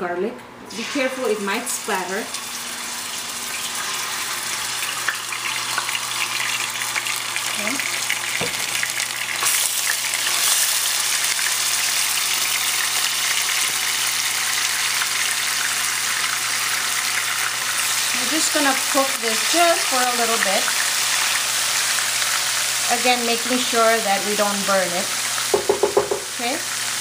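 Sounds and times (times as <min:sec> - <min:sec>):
paste sizzling in hot oil: 0:00.7 - 0:27.0.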